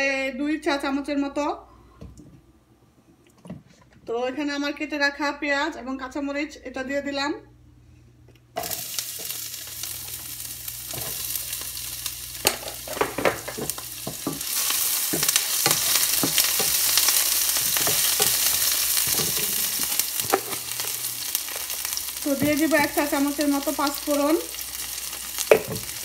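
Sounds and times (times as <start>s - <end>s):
onions sizzling in hot oil: 8.6s - 26.0s
wooden spatula scraping a pan: 12.8s - 21.0s.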